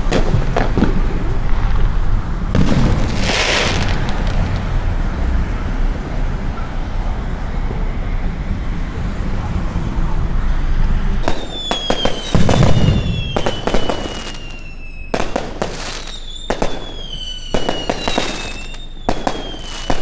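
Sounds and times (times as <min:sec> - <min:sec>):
fireworks hissing crackle: 0:00.0 - 0:06.0, 0:10.7 - 0:20.0
fireworks banging: 0:00.0 - 0:06.7, 0:10.7 - 0:20.0
low rumble of traffic: 0:00.0 - 0:20.0.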